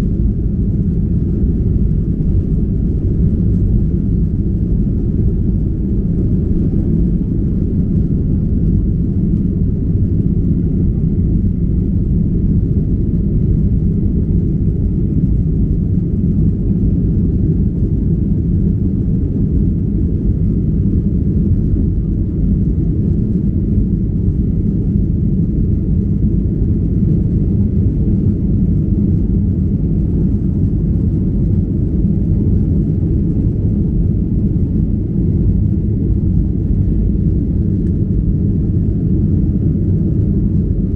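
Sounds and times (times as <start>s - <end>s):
airliner cabin noise: 0.0s - 40.9s.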